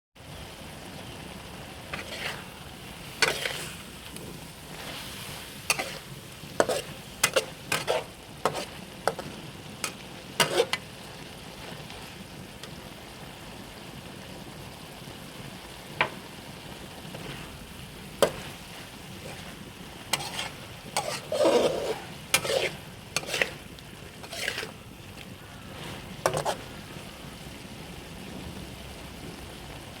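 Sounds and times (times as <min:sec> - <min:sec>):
food sizzling in a pan: 0:00.2 - 0:30.0
utensil scraping and knocking pan: 0:01.9 - 0:02.4, 0:03.2 - 0:03.8, 0:05.7 - 0:10.8, 0:18.2 - 0:23.6, 0:24.2 - 0:24.8, 0:25.8 - 0:26.7.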